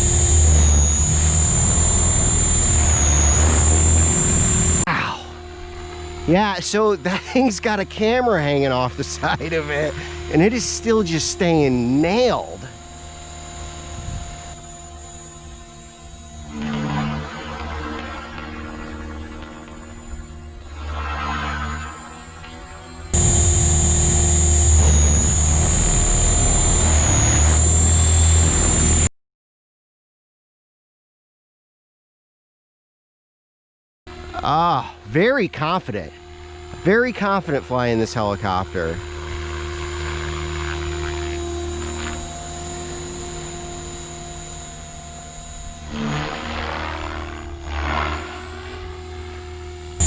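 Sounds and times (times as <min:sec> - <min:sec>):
rc helicopter motor whine: 0:00.0 - 0:29.1, 0:34.1 - 0:50.0
low rumble: 0:23.2 - 0:28.7.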